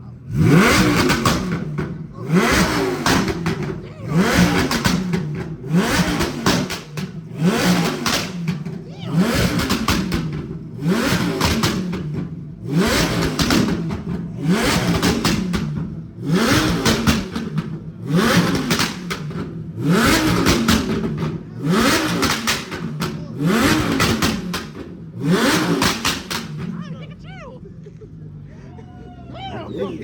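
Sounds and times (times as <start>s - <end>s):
car engine revving: 0.0s - 28.5s
exhaust popping and crackling: 0.2s - 28.4s
man talking: 29.5s - 30.0s.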